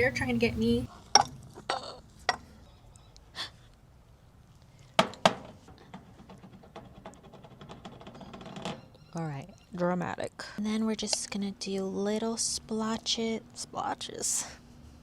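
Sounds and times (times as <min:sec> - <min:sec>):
sharp knocks and clicks: 0:05.0 - 0:09.0.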